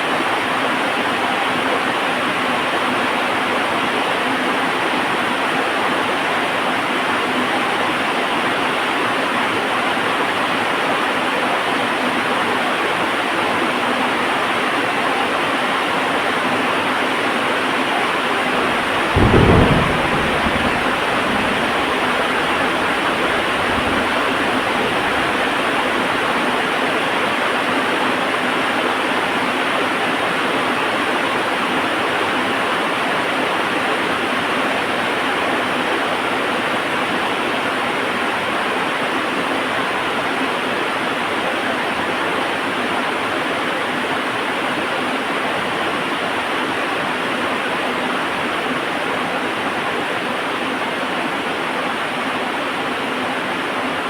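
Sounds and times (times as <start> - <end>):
heavy rain: 16.0 - 54.0
thunder rumbling: 18.3 - 26.4.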